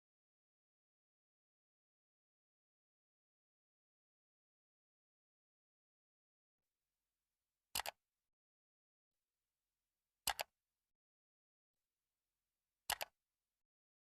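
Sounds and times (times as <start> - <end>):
sharp double clicks: 12.9 - 13.1.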